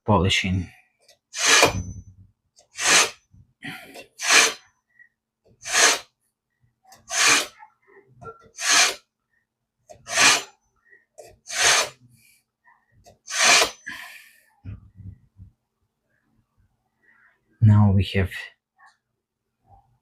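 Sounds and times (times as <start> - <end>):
knife sharpener scrapes: 1.3 - 1.9, 2.7 - 3.2, 4.0 - 4.6, 5.6 - 6.1, 7.0 - 7.6, 8.6 - 9.0, 9.9 - 10.6, 11.2 - 12.0, 13.3 - 13.8.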